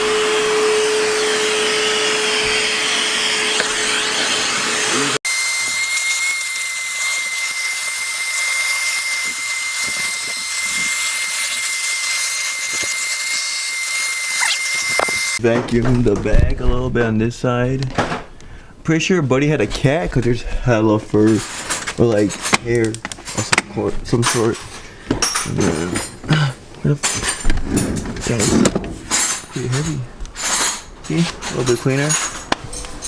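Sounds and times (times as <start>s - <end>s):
vacuum cleaner running: 0.0s - 15.4s.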